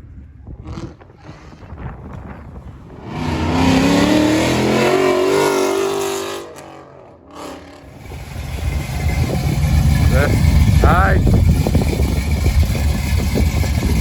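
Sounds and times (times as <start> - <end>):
car engine revving: 0.6 - 14.0.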